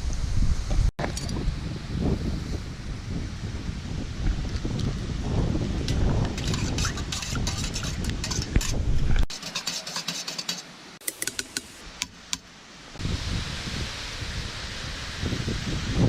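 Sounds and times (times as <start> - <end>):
wind rumble on microphone: 0.0 - 9.3, 13.0 - 16.0.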